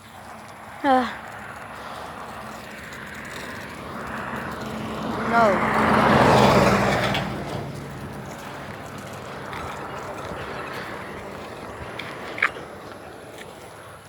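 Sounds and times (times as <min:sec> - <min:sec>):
vehicle engine passing by: 0:00.0 - 0:14.0.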